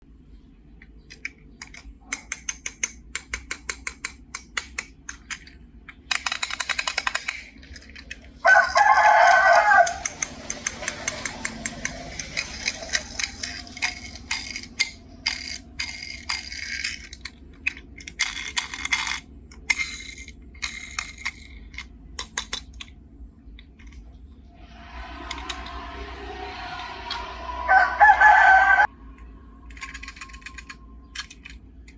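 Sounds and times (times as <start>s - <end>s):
clicks and rattles: 0.8s - 8.9s
loud pitched call: 24.6s - 29.7s.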